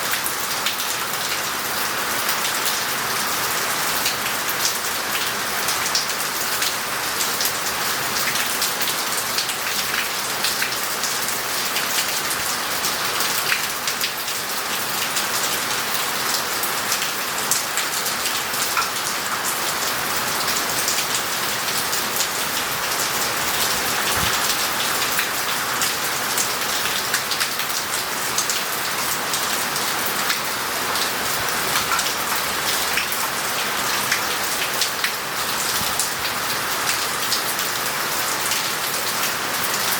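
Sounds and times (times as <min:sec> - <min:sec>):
heavy rain on paving: 0:00.0 - 0:39.9.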